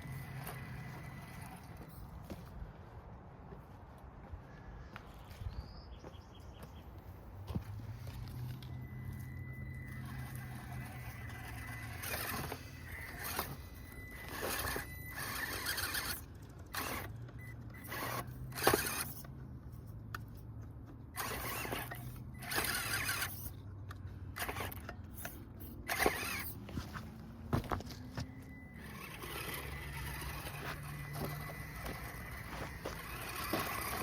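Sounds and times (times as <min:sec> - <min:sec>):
electric motor hum: 0:00.0 - 0:01.9, 0:07.9 - 0:19.2, 0:27.6 - 0:34.0
tyres crunching over dirt and rock: 0:00.0 - 0:02.6, 0:07.4 - 0:17.1, 0:25.9 - 0:34.0.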